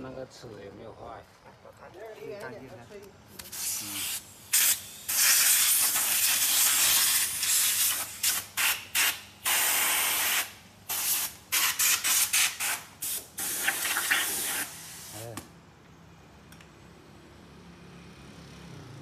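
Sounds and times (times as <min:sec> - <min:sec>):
compressed air blow gun hissing: 0:03.4 - 0:15.4.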